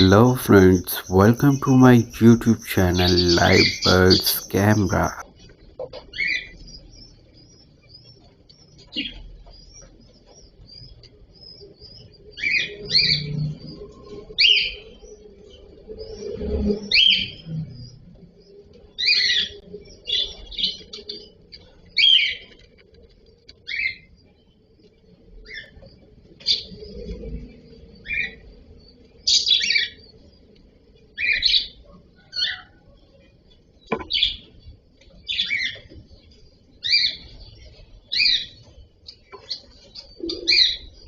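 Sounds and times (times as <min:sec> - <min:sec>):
cockatiels chirping: 0:06.1 - 0:13.2.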